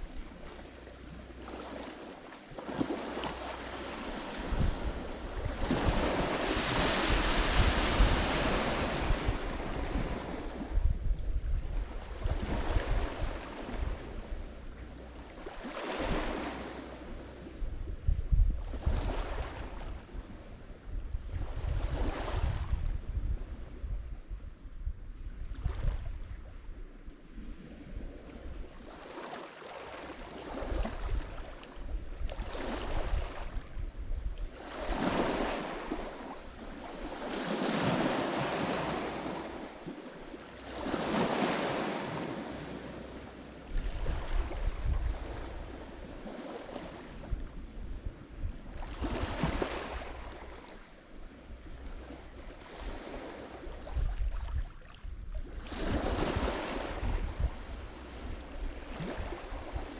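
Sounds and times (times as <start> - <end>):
waves breaking on shore: 0.0 - 17.6, 18.6 - 20.3, 27.5 - 33.8, 34.4 - 59.9.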